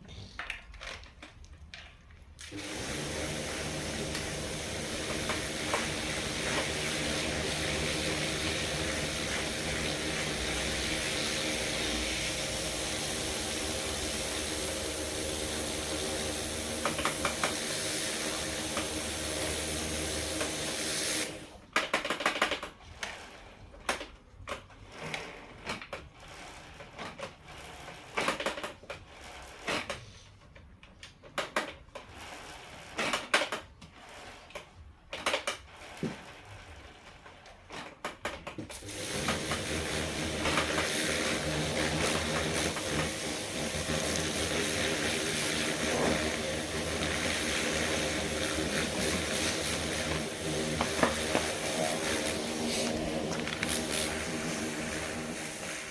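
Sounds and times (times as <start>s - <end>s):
steady mechanical noise: 38.8s - 55.9s.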